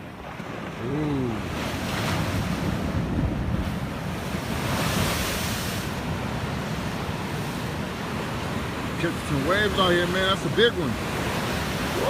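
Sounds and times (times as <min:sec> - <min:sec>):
ocean surf breaking: 0:00.0 - 0:12.0
wind buffeting microphone: 0:00.4 - 0:09.6.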